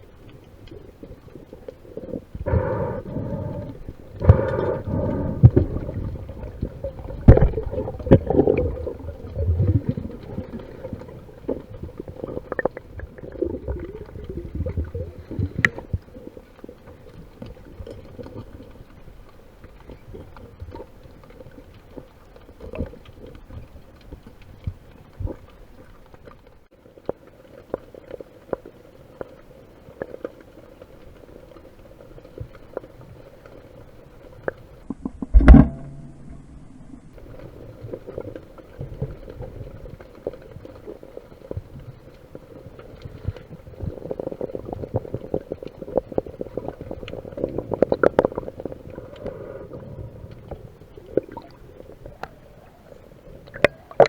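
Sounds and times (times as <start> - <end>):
underwater churning water rumbling: 0.0 - 27.0, 28.4 - 54.0
underwater clicks and knocks: 2.5 - 16.0, 34.4 - 40.0, 53.4 - 54.0.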